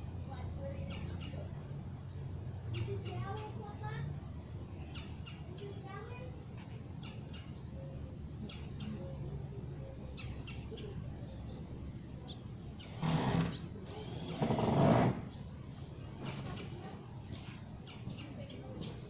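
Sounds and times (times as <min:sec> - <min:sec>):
small bird chirping: 0:00.6 - 0:04.0, 0:04.7 - 0:14.1
short bursts of noise: 0:12.8 - 0:15.4.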